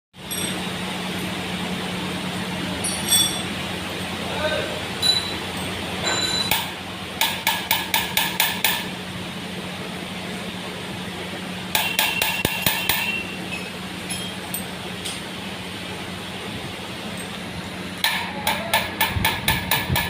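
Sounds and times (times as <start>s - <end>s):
steady hum: 0.2s - 20.0s
rapid hammer strikes on metal: 6.5s - 8.9s, 11.7s - 13.2s, 18.0s - 20.0s.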